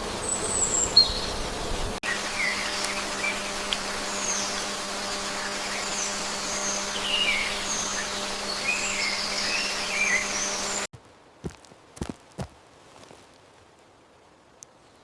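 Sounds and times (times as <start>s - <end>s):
small birds chirping: 0.2s - 10.9s.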